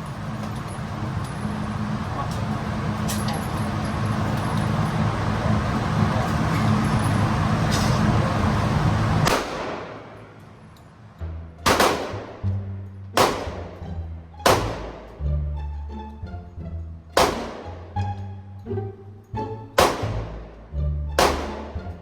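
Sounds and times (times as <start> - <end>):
rifle shots: 9.2 - 10.4, 11.6 - 12.6, 13.2 - 15.2, 17.2 - 18.0, 19.8 - 20.5, 21.2 - 21.9
music with deep bass line: 11.2 - 22.0.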